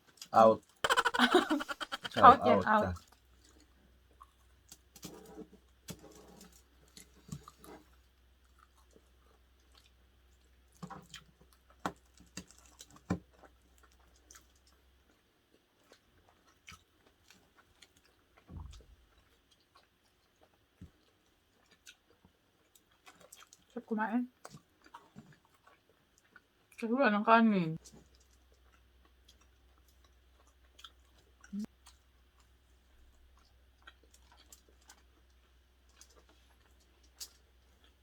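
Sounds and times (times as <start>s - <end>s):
chewing and eating: 0.0s - 26.8s, 27.8s - 38.0s.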